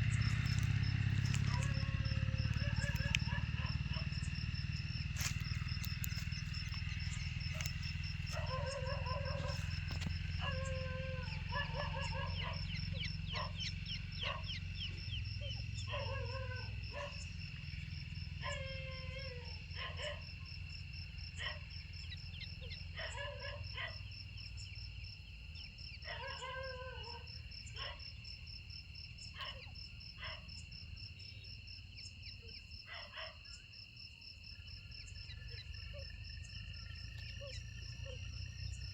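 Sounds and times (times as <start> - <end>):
steady low hum: 0.0 - 20.1
crickets trilling: 0.0 - 38.9
animal giving short calls: 0.1 - 4.3.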